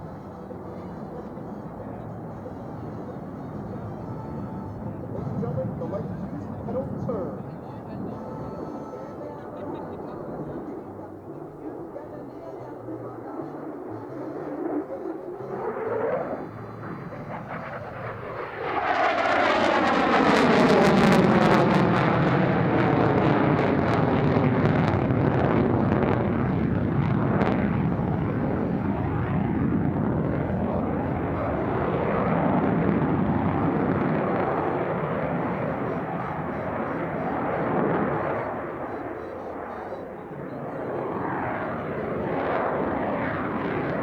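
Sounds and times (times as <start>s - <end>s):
jet engine roaring past: 0.0s - 44.0s.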